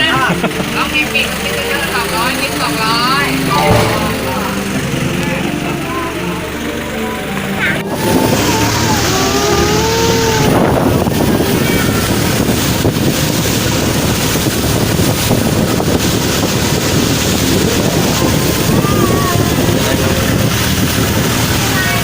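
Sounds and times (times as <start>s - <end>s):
motorboat engine running: 0.0s - 3.6s, 4.6s - 22.0s
wind buffeting microphone: 10.3s - 22.0s.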